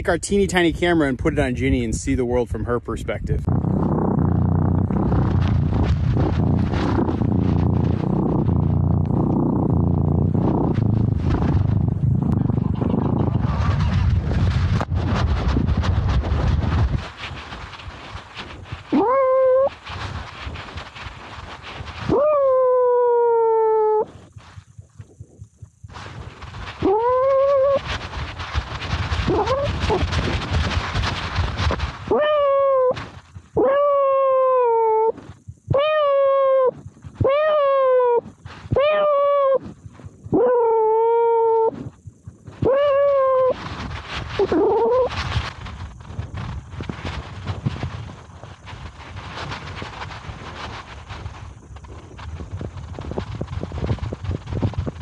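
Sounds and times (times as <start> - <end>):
steady low rumble: 0.0 - 23.4, 24.0 - 33.6, 41.6 - 55.0
rustling and scraping in snow: 3.4 - 55.0
kitten meowing: 32.1 - 33.0, 35.7 - 39.6.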